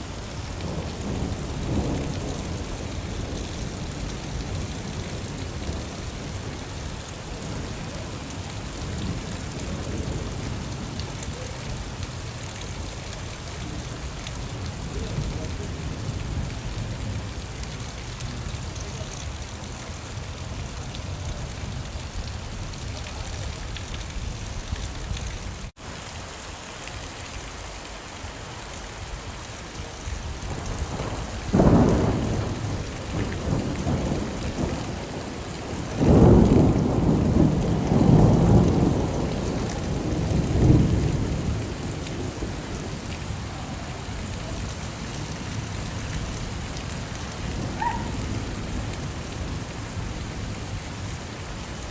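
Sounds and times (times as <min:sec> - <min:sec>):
steady rain: 0:00.0 - 0:51.9
thunder rumbling: 0:00.3 - 0:06.7, 0:30.2 - 0:51.1
rolling thunder peal: 0:30.4 - 0:44.6.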